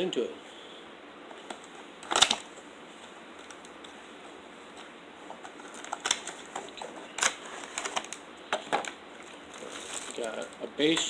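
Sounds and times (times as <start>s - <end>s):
packaging rustling: 4.7s - 11.0s.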